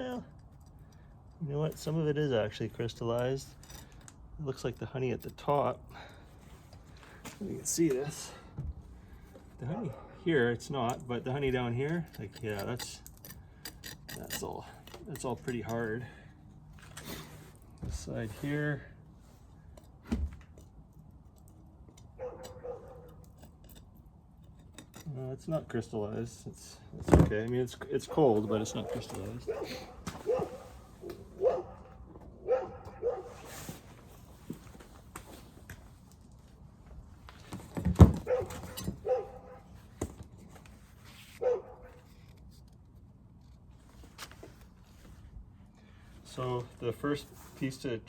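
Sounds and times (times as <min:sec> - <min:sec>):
dog barking: 0:22.2 - 0:23.2, 0:28.8 - 0:33.4, 0:38.2 - 0:39.7, 0:41.4 - 0:42.0.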